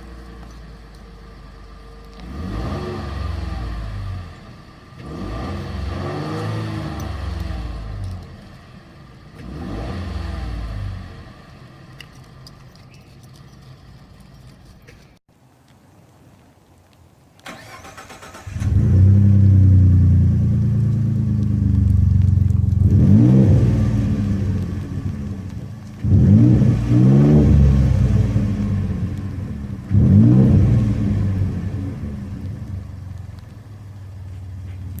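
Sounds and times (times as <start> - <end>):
truck engine starting and revving: 1.4 - 8.5, 9.2 - 12.5, 17.4 - 35.0.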